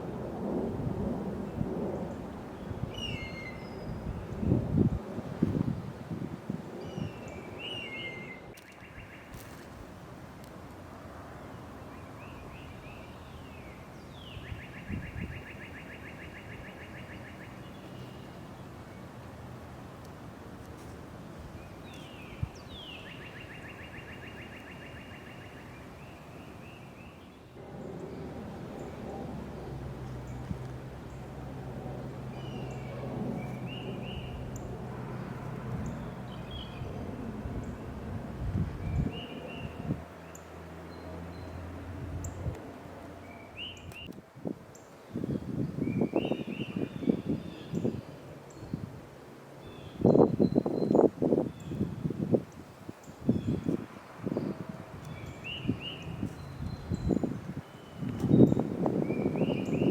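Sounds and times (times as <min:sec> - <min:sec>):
outdoor background hum: 0:00.0 - 0:59.9
songbird chirps and trill: 0:06.7 - 0:09.8, 0:11.3 - 0:31.3, 0:32.1 - 0:38.0, 0:38.6 - 0:42.6, 0:43.2 - 0:48.9, 0:49.6 - 0:59.9
steady low hum: 0:27.5 - 0:43.5.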